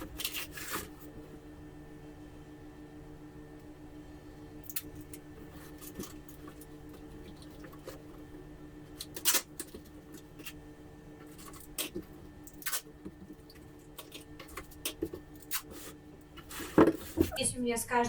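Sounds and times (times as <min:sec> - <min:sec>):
packing tape rustling and crackling: 0:00.0 - 0:01.2, 0:08.9 - 0:10.6.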